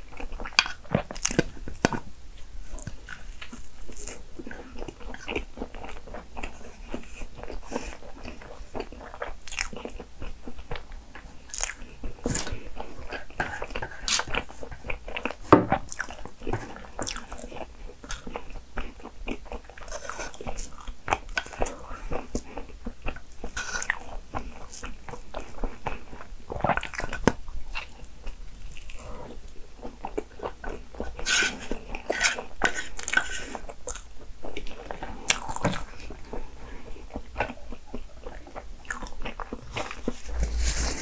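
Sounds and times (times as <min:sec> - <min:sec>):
person chewing cake: 0:00.0 - 0:41.0.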